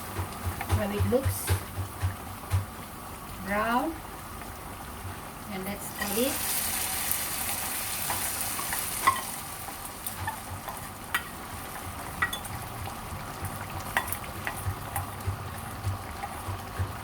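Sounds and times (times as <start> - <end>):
curry sizzling: 0.0 - 17.0
spoon clicking and scraping pot: 8.0 - 9.4, 10.0 - 12.6, 13.4 - 17.0.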